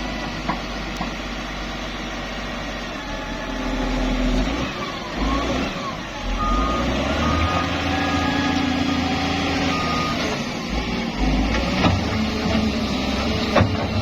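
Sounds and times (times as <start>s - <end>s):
diesel engine rumble: 0.0s - 14.0s
reversing alarm beeps: 5.1s - 10.8s.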